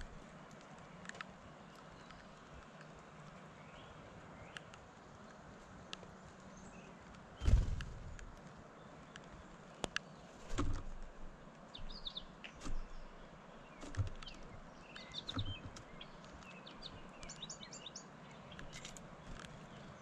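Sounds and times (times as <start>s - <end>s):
songbirds chirping: 0.0s - 20.0s
birds thumping on wooden feeder: 10.4s - 17.3s.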